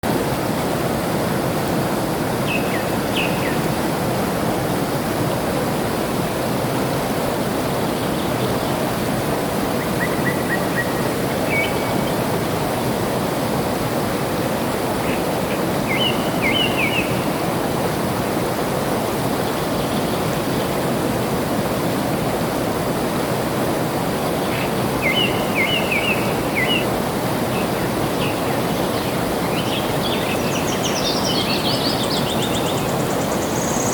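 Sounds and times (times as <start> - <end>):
flowing water: 0.0 - 33.9
small birds chirping: 27.5 - 33.9.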